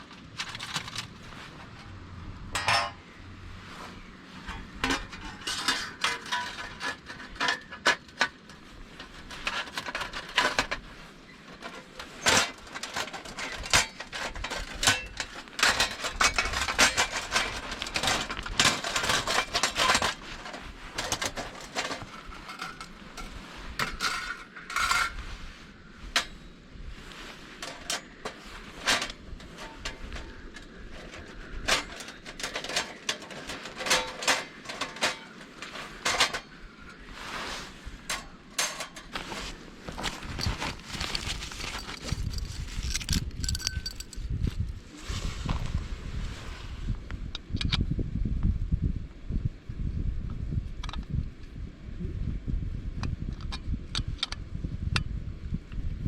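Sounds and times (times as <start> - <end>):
hard objects clinking and clattering: 4.5 - 10.9, 11.5 - 25.2, 27.6 - 37.1, 38.0 - 44.4.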